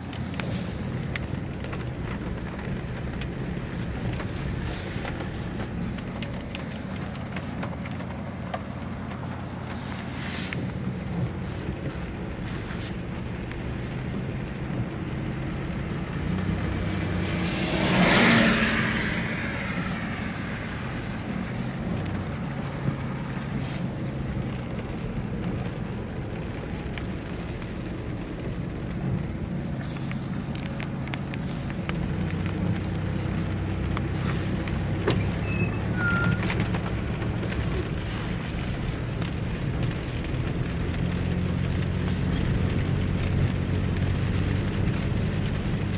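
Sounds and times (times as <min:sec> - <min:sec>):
car engine hum: 0:00.0 - 0:45.9
rain: 0:00.0 - 0:45.9
tyres on wet road: 0:00.0 - 0:45.9
water spray: 0:09.7 - 0:13.0.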